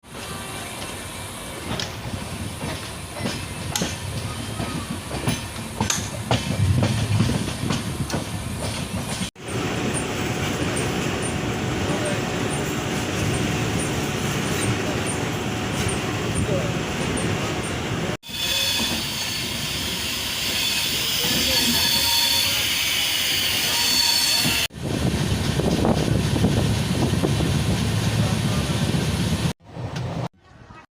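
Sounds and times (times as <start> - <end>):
train rumble: 0.0 - 30.8
train hiss on rails: 0.1 - 6.9, 18.2 - 25.8
train wheels clattering over rail joints: 1.6 - 9.3
steady rushing noise: 6.6 - 8.6.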